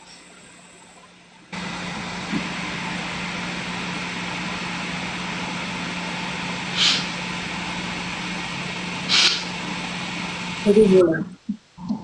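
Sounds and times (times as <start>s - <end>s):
background hiss: 0.0s - 12.0s
low hum: 0.0s - 12.0s
short sharp hissing: 6.7s - 7.2s, 9.0s - 9.6s.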